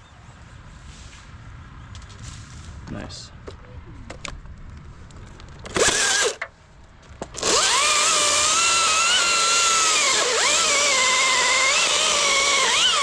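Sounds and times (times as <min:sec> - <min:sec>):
chainsaw revving: 0:05.8 - 0:06.4, 0:07.4 - 0:13.0.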